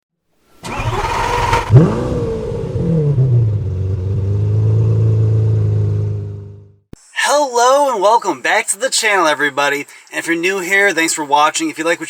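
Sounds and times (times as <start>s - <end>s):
vehicle engine starting: 0.5s - 6.8s.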